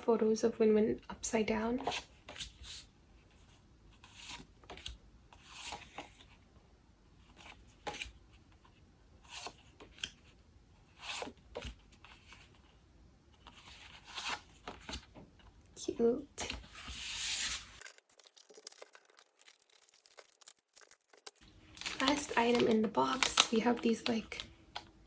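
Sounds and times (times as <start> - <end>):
paper cards rustling and sliding: 1.8 - 6.4, 7.3 - 10.3, 13.4 - 15.1, 16.4 - 25.0.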